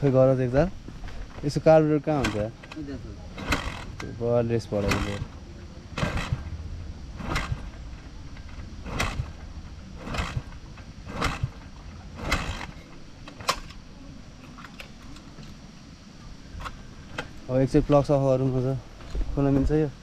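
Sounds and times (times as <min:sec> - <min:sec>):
dirt bike engine kicked over: 0:04.7 - 0:05.3, 0:06.0 - 0:06.5, 0:07.2 - 0:13.8.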